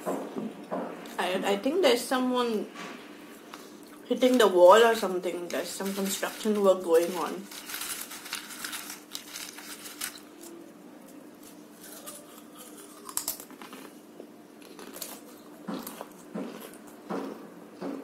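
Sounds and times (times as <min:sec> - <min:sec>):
crunchy snack bitten and chewed: 0:11.8 - 0:14.0, 0:14.6 - 0:17.0.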